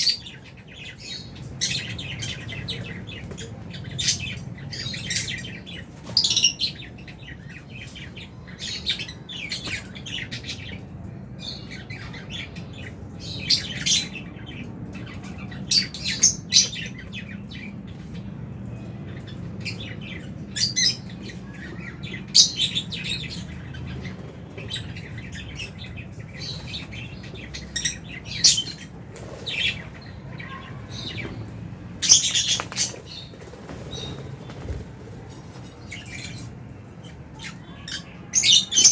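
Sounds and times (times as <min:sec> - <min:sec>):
lovebirds chirping: 0:00.0 - 0:38.9.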